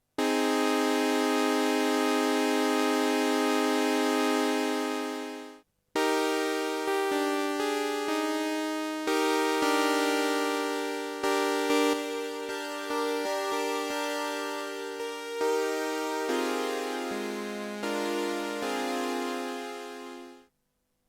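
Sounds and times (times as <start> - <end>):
synthesizer notes: 9.2 - 20.4.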